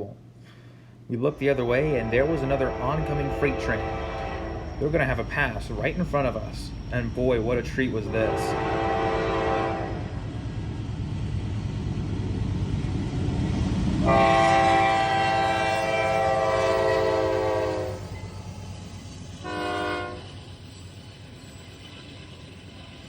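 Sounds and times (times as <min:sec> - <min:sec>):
train rumble: 0:00.0 - 0:23.0
locomotive air horn blasts: 0:01.5 - 0:04.8, 0:08.1 - 0:10.2, 0:14.0 - 0:18.1, 0:19.4 - 0:20.3.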